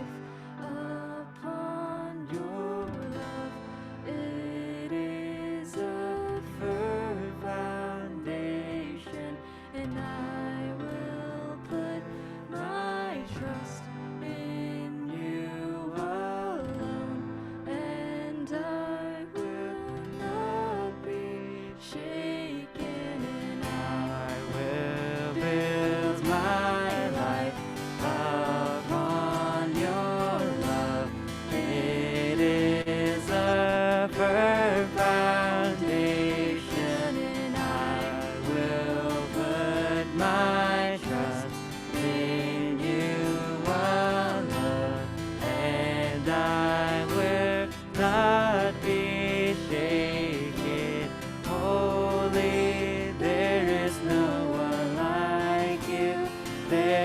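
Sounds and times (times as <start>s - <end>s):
guitar accompaniment: 0.0s - 57.0s
people singing a slow song: 0.0s - 57.0s.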